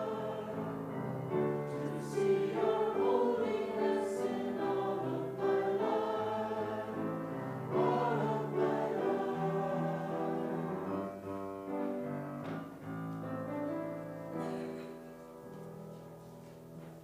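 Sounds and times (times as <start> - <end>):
choir singing a hymn: 0.0 - 11.6
piano accompaniment: 0.0 - 17.0.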